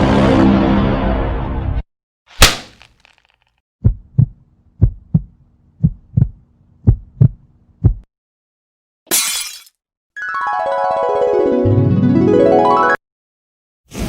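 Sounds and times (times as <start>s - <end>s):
heartbeat thumps: 3.8s - 8.1s.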